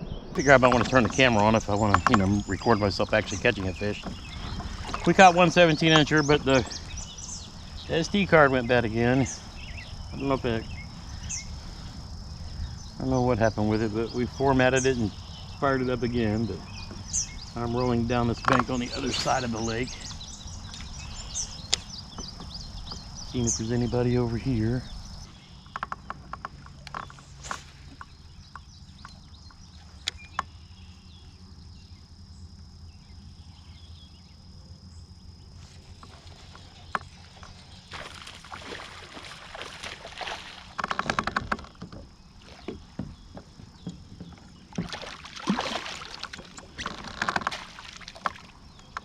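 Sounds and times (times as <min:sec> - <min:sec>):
water sloshing around hull: 0:00.4 - 0:13.0, 0:24.9 - 0:31.5, 0:35.5 - 0:49.0
gear clicks and knocks: 0:40.7 - 0:44.9, 0:46.3 - 0:49.0.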